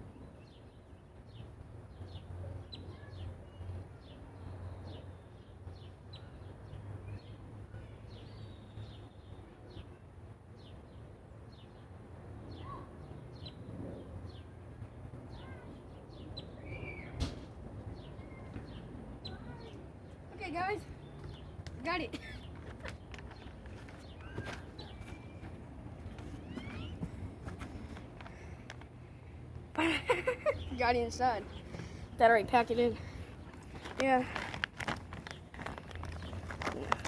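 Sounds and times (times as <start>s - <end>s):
small birds chirping: 12.5s - 37.0s.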